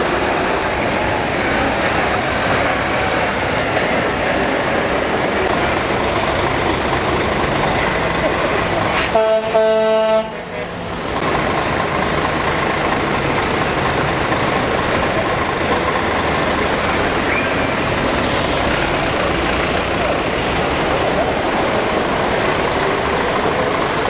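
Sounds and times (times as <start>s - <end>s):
heavy trucks driving past: 0.0s - 24.0s.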